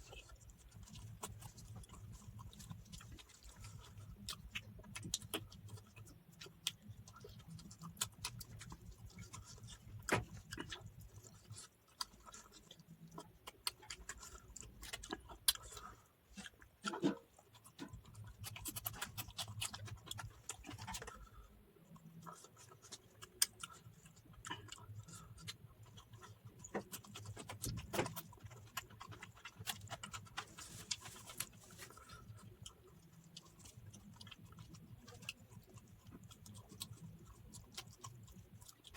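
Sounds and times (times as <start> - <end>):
wet chewing clicks and smacks: 0.0 - 38.9.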